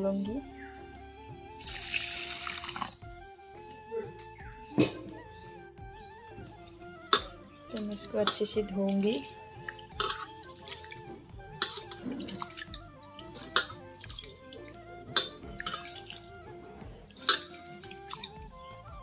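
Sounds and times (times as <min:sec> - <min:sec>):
background music with melody: 0:00.0 - 0:19.0
sharp water splashes: 0:01.6 - 0:03.0, 0:07.1 - 0:16.3, 0:17.2 - 0:18.3
water sloshing and dripping: 0:01.6 - 0:03.2, 0:06.4 - 0:18.4.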